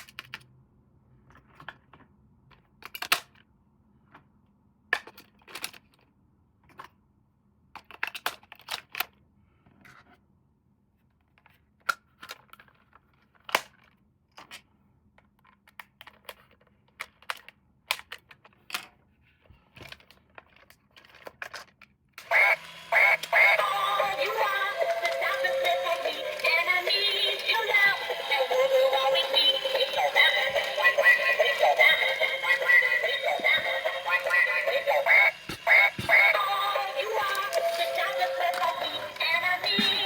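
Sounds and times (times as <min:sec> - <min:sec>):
toy being handled and unpacked: 0:07.8 - 0:10.2, 0:10.9 - 0:40.0
electronic toy music with singing: 0:22.2 - 0:40.0.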